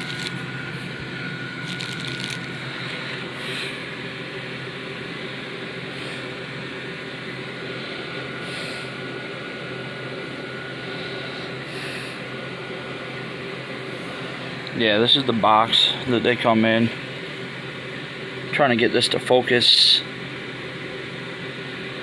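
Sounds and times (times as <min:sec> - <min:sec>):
faint high whine: 0:00.0 - 0:20.4
background hum and hiss: 0:00.0 - 0:22.0.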